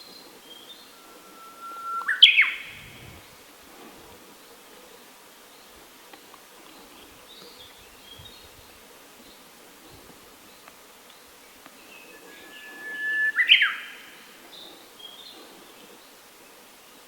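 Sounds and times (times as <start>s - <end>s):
faint bird chirps: 0.0s - 3.4s, 9.3s - 16.2s
bird singing whistle and flourish: 0.2s - 3.3s, 11.8s - 14.3s.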